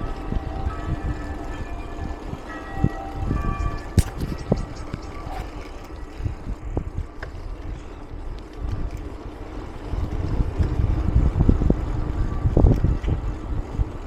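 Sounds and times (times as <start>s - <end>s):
bike rolling on rough trail: 0.0s - 14.0s
wind buffeting microphone: 0.0s - 14.0s
bike knocks and rattles: 3.4s - 7.4s.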